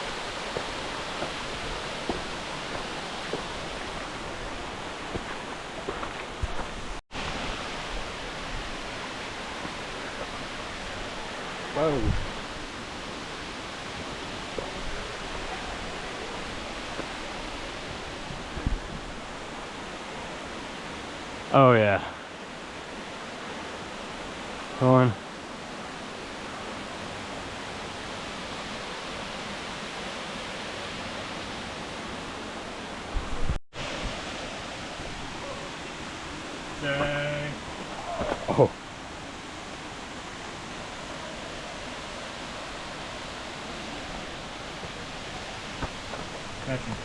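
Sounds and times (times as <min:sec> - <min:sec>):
waterfall rushing: 0:00.0 - 0:47.0.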